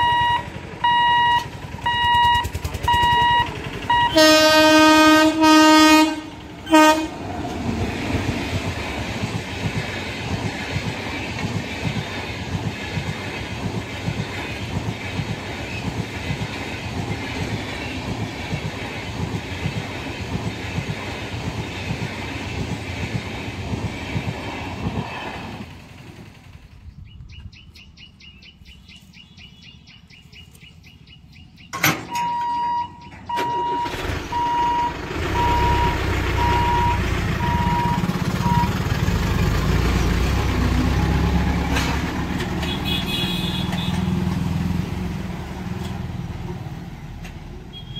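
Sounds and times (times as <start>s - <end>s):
level-crossing warning beeps: 0.0s - 4.6s, 31.6s - 38.9s
locomotive horn: 0.0s - 7.3s, 41.7s - 44.3s, 47.7s - 47.9s
train wheels clacking over rail joints: 0.5s - 27.5s, 35.1s - 47.7s.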